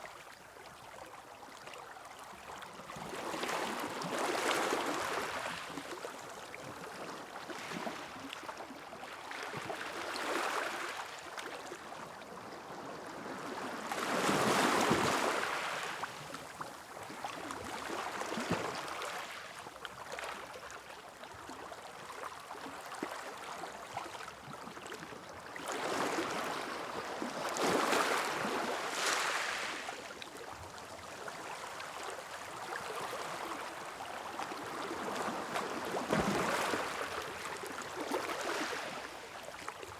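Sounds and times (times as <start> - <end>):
sea waves breaking on beach: 25.7 - 30.0, 32.9 - 39.4.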